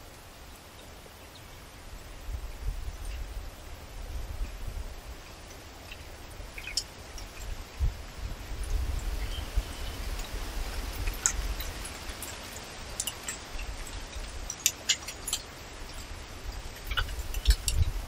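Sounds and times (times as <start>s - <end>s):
birds chirping: 5.2s - 7.5s, 8.6s - 10.4s.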